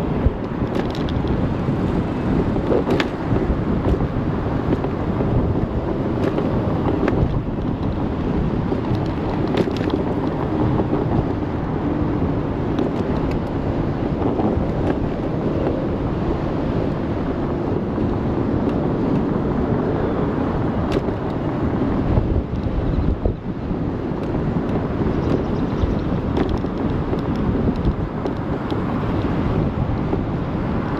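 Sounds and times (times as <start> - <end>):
road rumble: 0.0 - 30.9
wind rush over microphone: 0.0 - 30.9.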